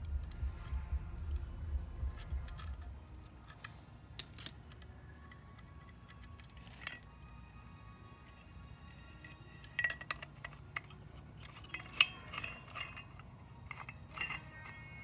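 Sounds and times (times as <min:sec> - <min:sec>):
handling rumble: 0:00.0 - 0:03.4.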